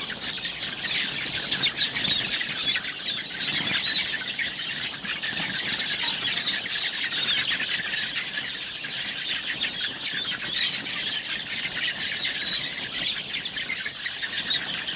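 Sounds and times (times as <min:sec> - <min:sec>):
flock of chickens calling: 0:00.0 - 0:14.9.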